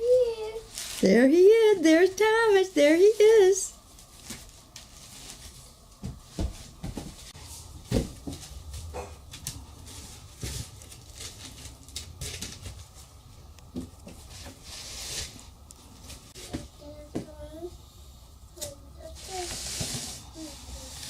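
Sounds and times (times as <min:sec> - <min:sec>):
small child vocal sounds: 0:00.0 - 0:00.7.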